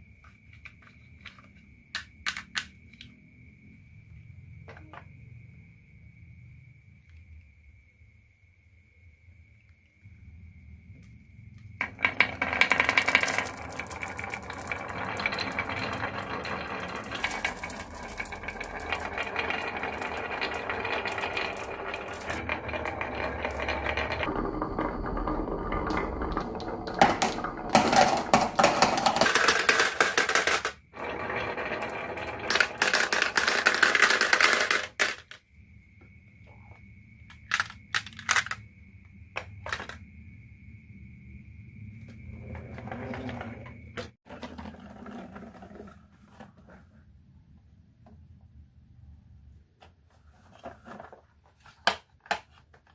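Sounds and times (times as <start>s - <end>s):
marbles rattling down a track: 11.8s - 35.4s, 37.3s - 38.6s.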